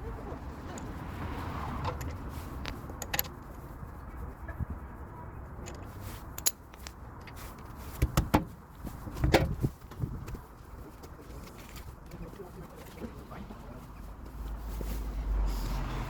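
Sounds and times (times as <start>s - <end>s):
tools clicking and knocking: 1.8s - 3.4s, 5.6s - 7.4s, 8.0s - 8.5s.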